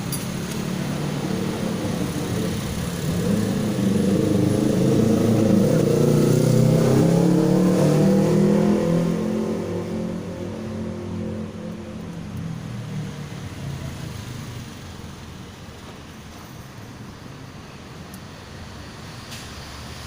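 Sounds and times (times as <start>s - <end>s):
vehicle engine revving: 0.4s - 13.2s.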